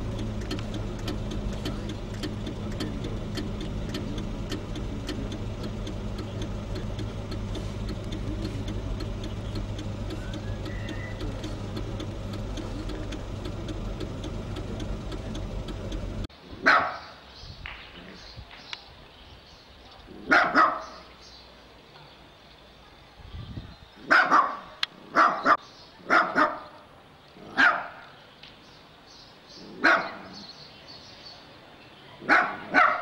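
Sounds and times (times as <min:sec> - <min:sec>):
car engine humming: 0:00.0 - 0:16.3
faint regular ticking: 0:00.0 - 0:16.3
dog barking: 0:16.6 - 0:17.1, 0:20.3 - 0:21.0, 0:24.1 - 0:26.7, 0:27.6 - 0:28.0, 0:29.8 - 0:30.3, 0:32.2 - 0:33.0.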